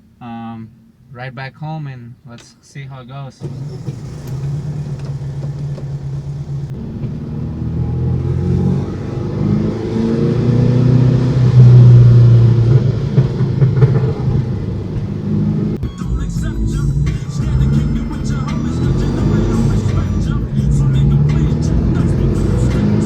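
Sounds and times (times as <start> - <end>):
car engine pulling: 3.3 - 23.0.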